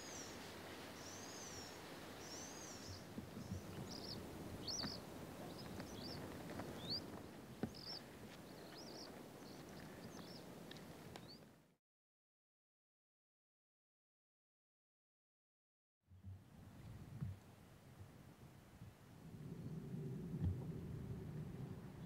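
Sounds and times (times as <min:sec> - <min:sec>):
small birds chirping: 0:00.0 - 0:11.5
steady background hiss: 0:00.0 - 0:11.7.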